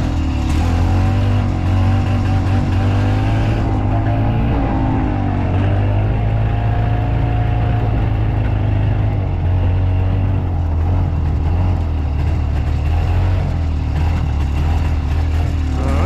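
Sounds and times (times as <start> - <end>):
golf car engine droning: 0.0 - 16.0.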